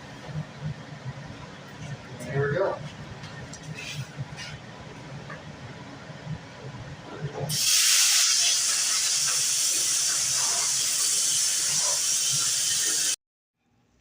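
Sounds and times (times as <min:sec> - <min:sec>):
plasma cutter hissing through steel: 0:07.5 - 0:13.2.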